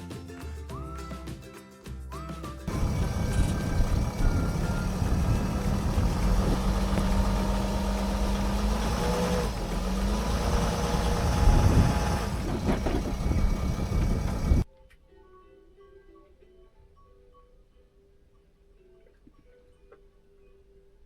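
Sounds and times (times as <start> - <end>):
road noise: 2.7 - 14.6
van engine rumbling: 2.7 - 14.6.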